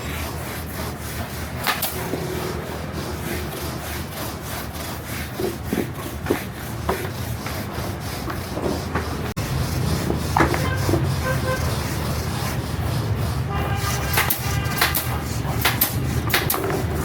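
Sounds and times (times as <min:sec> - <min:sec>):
traffic rumble: 0:00.0 - 0:17.0
car horn toot: 0:10.6 - 0:11.7, 0:13.5 - 0:15.0.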